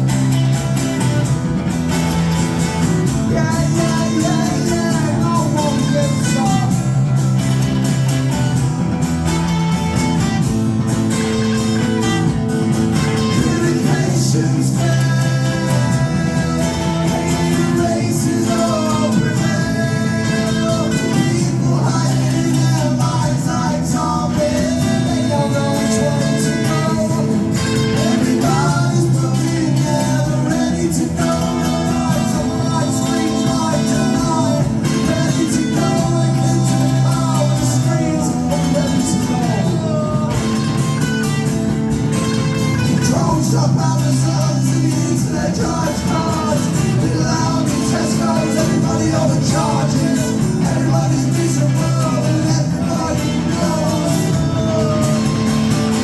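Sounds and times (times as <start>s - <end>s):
live band playing: 0.0s - 56.0s
strummed guitar: 0.0s - 56.0s.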